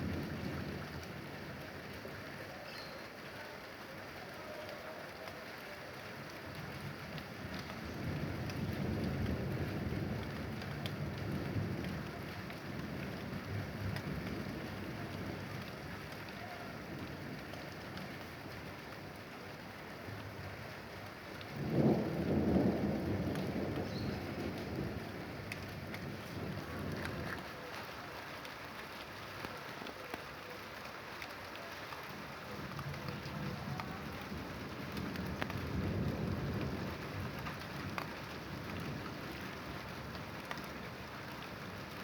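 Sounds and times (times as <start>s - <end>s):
rain falling: 0.0s - 42.0s
thunder rumbling: 21.4s - 27.7s, 32.2s - 41.9s.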